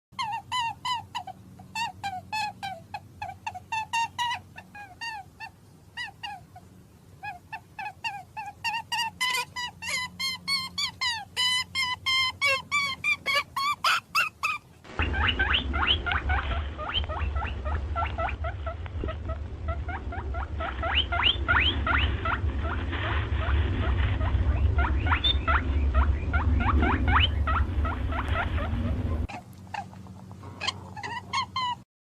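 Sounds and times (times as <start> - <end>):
small animal squeaking: 0.2 - 31.8
low hum: 14.8 - 31.8.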